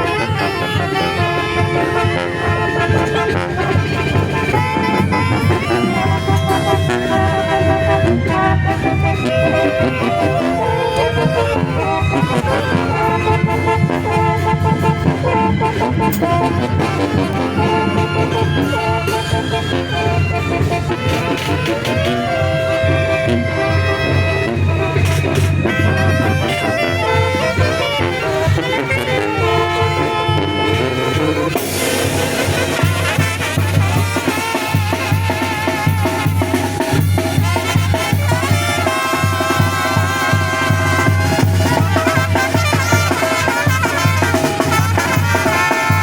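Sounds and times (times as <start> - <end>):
bass drum beat: 0.0 - 29.7
brass and woodwind melody: 0.0 - 46.0
trumpets and saxophones: 0.0 - 46.0
bass drum: 31.6 - 46.0.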